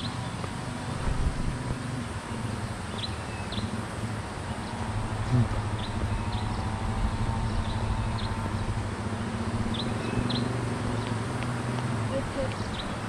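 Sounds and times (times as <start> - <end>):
car engine climbing: 0.0 - 13.0
small birds chirping: 2.3 - 3.8, 4.4 - 13.0.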